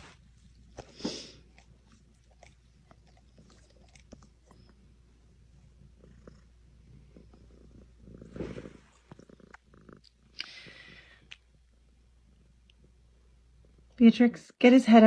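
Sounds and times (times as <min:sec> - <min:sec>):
pet animal purr-like grumble: 0:06.0 - 0:10.0.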